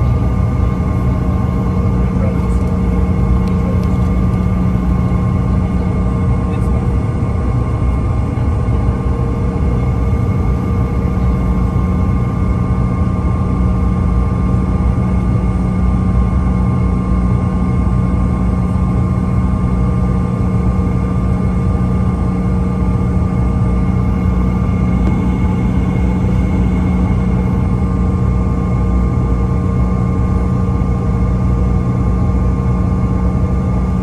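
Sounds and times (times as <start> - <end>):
airliner cabin rumble and hum: 0.0 - 34.0
machinery whining tones: 23.6 - 34.0.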